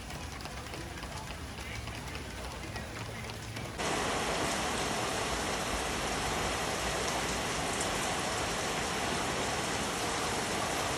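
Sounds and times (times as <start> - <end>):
heavy rain: 3.4 - 10.9.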